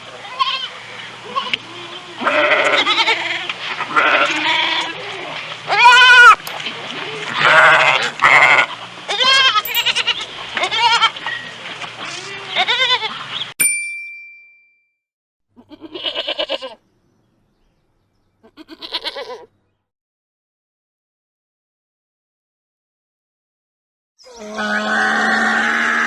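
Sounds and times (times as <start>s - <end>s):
animals bleating: 0.2s - 6.4s, 12.0s - 13.2s, 15.6s - 16.8s, 18.4s - 19.6s
short ringing ding: 6.4s - 6.7s, 9.6s - 10.4s, 13.6s - 15.0s.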